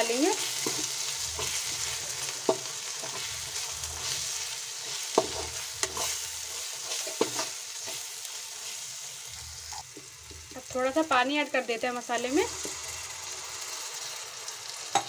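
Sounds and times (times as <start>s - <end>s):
masala sizzling in hot oil: 0.0s - 15.0s
metal spatula scraping pan: 0.3s - 8.1s.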